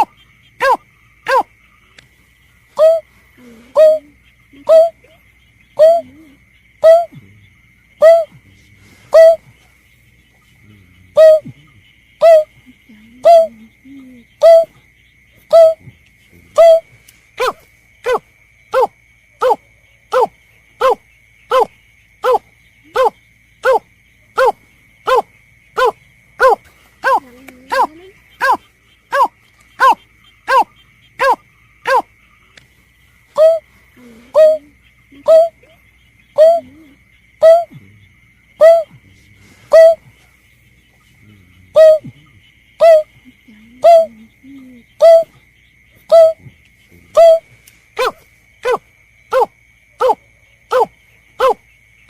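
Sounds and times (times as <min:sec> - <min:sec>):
snipe hooting call: 0:00.0 - 0:01.5, 0:02.7 - 0:05.2, 0:05.8 - 0:07.2, 0:08.0 - 0:08.4, 0:09.1 - 0:09.5, 0:11.1 - 0:11.6, 0:12.2 - 0:14.8, 0:15.4 - 0:15.9, 0:16.5 - 0:23.8, 0:24.4 - 0:32.1, 0:33.3 - 0:37.8, 0:38.5 - 0:39.0, 0:39.7 - 0:40.1, 0:41.7 - 0:42.2, 0:42.8 - 0:45.4, 0:46.0 - 0:46.5, 0:47.1 - 0:51.6.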